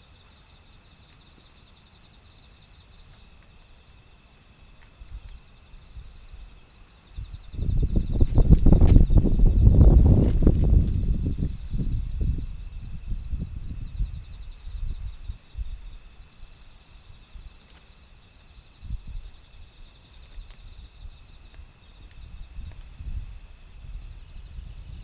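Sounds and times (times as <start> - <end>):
faint crickets chirping: 0.0 - 25.0
wind buffeting microphone: 7.1 - 16.6, 18.8 - 19.5, 20.4 - 25.0.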